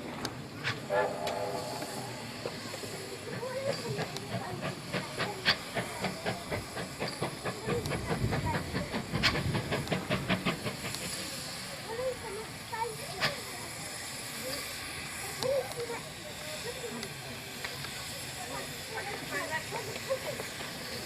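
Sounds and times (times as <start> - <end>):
steam hissing: 0.0 - 21.0
locomotive chuffing beats: 0.5 - 13.8, 18.0 - 21.0
short pitched tone: 0.9 - 2.4.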